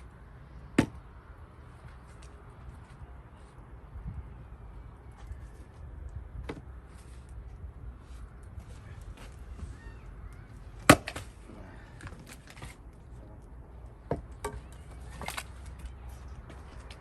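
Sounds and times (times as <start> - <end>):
axe splitting firewood: 0.6 - 1.0, 10.8 - 12.9.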